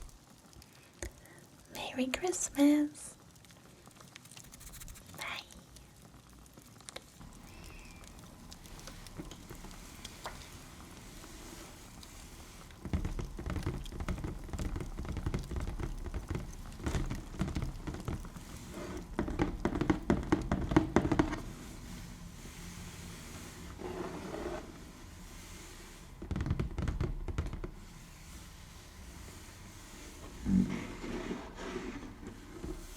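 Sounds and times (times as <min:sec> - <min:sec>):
faint crackles: 0:00.0 - 0:32.9
hands tapping and patting: 0:04.3 - 0:05.3, 0:12.8 - 0:21.5, 0:26.2 - 0:27.9.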